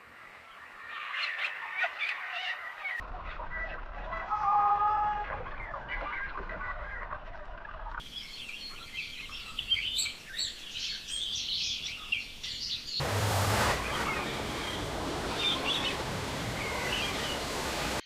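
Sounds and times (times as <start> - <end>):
small birds chirping: 8.0 - 13.1, 13.7 - 18.0
even rushing noise: 13.0 - 18.0
lower bird calls: 13.7 - 18.0.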